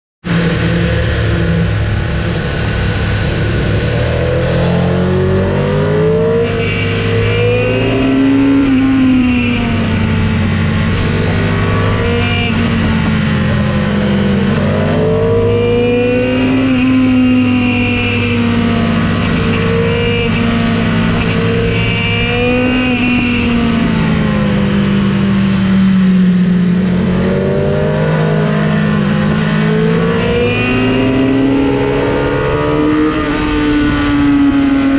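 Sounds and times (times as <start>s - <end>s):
motorcycle engine revving: 0.2s - 34.9s
steady rush of noise: 0.3s - 15.5s.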